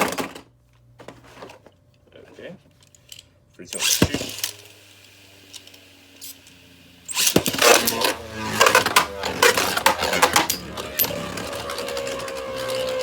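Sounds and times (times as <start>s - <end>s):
spinning tops whirring: 3.7s - 13.0s
spinning tops clacking together: 3.8s - 13.0s.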